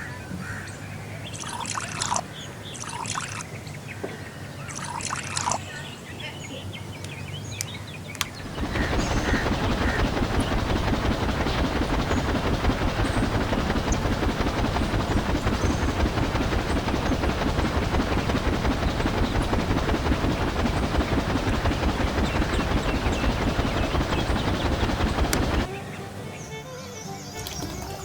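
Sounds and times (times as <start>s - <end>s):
small motor fluttering: 1.3s - 3.5s, 4.7s - 5.6s, 8.4s - 25.8s, 27.0s - 28.0s.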